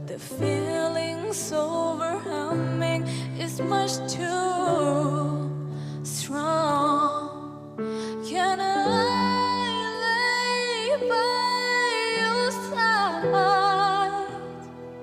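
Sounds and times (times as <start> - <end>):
soft instrumental accompaniment: 0.0 - 15.0
woman singing a ballad: 0.0 - 15.0.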